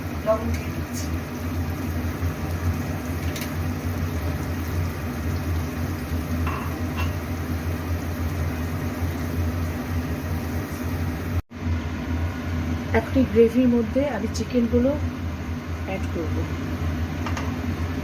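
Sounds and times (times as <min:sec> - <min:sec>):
kitchen fan humming: 0:00.0 - 0:18.0
cooking utensil clinking: 0:06.4 - 0:07.2.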